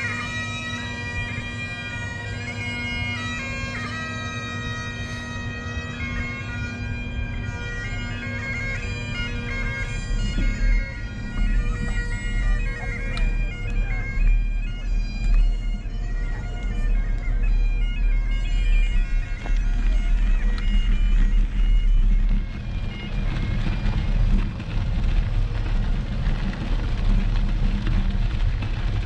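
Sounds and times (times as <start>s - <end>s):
bagpipes playing a tune: 0.0s - 25.6s
low rumble: 8.9s - 29.0s.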